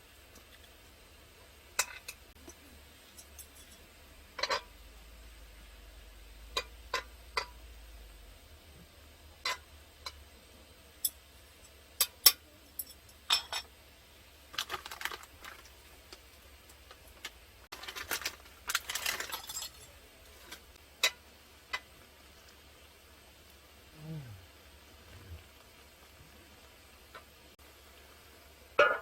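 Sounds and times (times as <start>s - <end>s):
small hard objects clinking: 14.5s - 21.2s.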